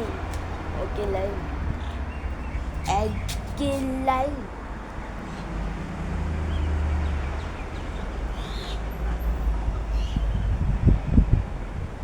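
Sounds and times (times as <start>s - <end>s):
wind buffeting microphone: 0.0s - 3.8s, 9.6s - 12.0s.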